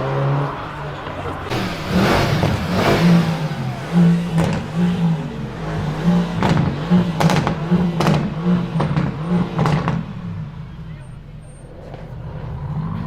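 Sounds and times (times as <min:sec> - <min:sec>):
car engine with loud exhaust: 0:00.0 - 0:13.0
sharp exhaust cracks: 0:00.5 - 0:10.1.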